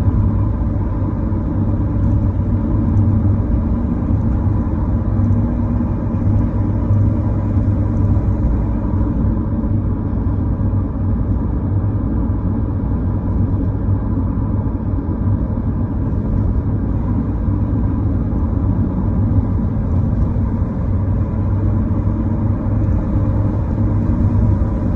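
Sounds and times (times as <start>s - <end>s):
car driving on road: 0.0s - 24.9s.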